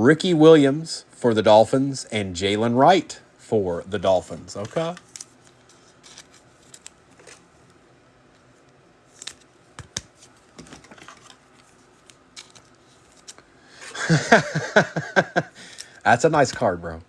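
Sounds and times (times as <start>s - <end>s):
cards clicking and rustling: 4.6s - 7.5s, 8.6s - 13.5s.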